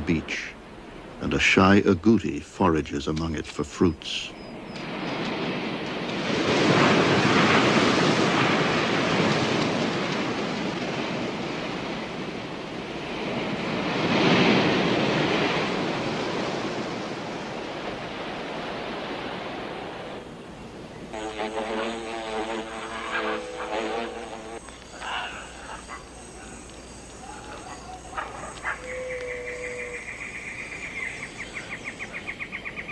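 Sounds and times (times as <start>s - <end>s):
surf washing up a beach: 4.1s - 21.8s
buzzing with stacked tones: 21.1s - 31.6s.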